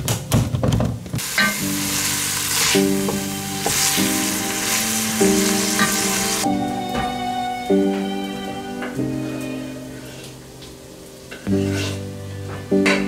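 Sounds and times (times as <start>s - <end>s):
food sizzling in hot oil: 1.2s - 6.5s.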